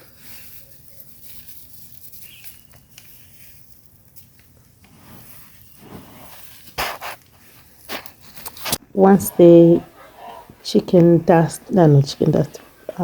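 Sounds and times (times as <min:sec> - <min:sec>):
charcoal crackling clatter: 0:00.0 - 0:08.8
charcoal rustling and patter: 0:00.0 - 0:08.8.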